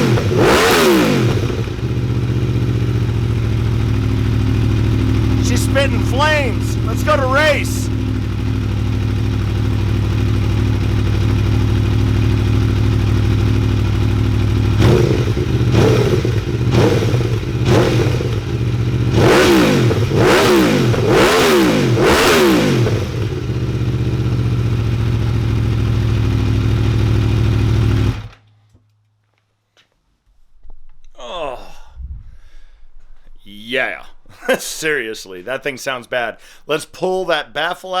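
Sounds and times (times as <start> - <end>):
motorcycle engine revving: 0.0 - 28.4.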